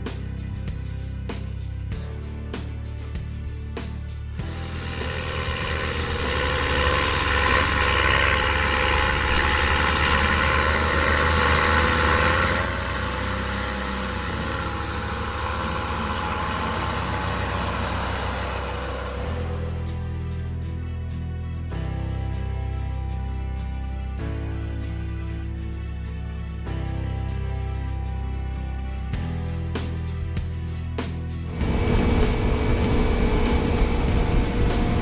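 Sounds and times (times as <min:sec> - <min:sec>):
heavy engine running: 0:03.4 - 0:21.0, 0:31.4 - 0:35.0.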